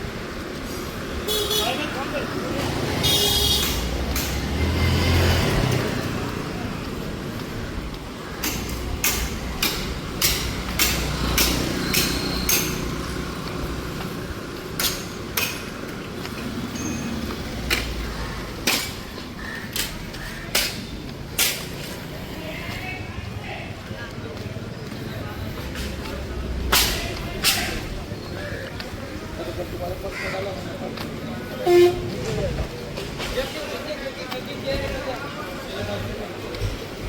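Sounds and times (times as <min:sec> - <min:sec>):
low rumble of street traffic: 0:00.0 - 0:37.0
sharp knocks: 0:08.4 - 0:13.0.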